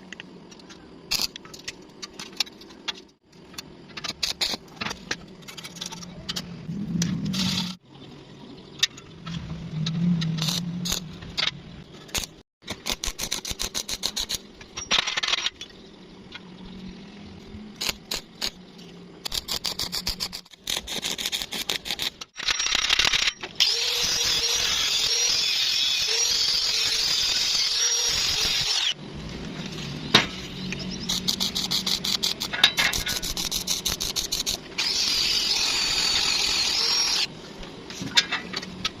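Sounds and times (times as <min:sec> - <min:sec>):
arc welding crackling: 0:10.4 - 0:11.2, 0:17.8 - 0:18.6, 0:31.0 - 0:37.3.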